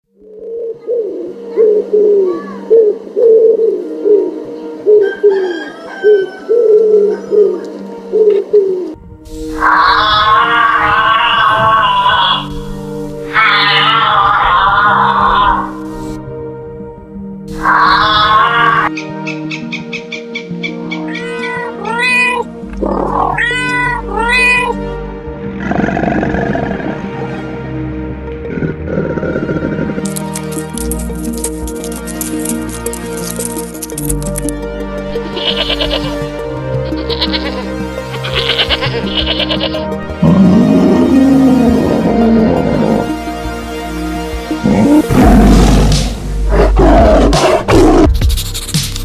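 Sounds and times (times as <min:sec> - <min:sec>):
background music: 0:00.0 - 0:49.0
bird calling low falling notes: 0:00.3 - 0:15.9
cat meowing: 0:09.5 - 0:12.5, 0:13.3 - 0:15.8, 0:17.5 - 0:18.9, 0:21.0 - 0:24.9, 0:35.2 - 0:36.2, 0:36.9 - 0:39.8.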